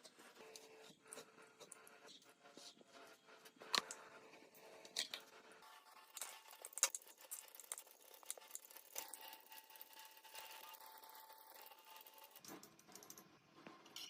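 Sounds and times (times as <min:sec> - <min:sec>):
small parts clicking and tapping: 0:04.8 - 0:05.4, 0:06.0 - 0:14.0.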